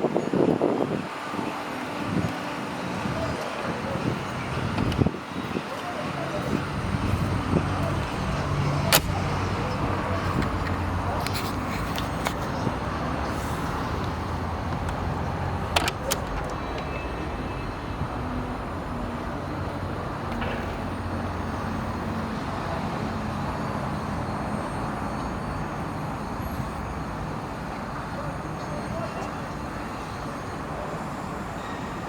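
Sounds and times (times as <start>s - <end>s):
motor vehicle hum: 2.0s - 24.7s
sharp clicks: 8.8s - 9.6s.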